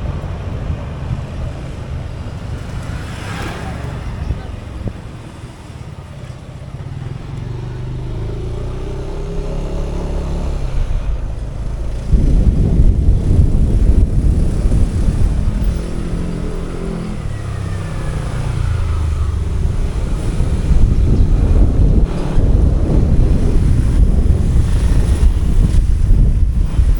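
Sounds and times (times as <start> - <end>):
motorcycle engine speeding up: 6.9 - 26.9.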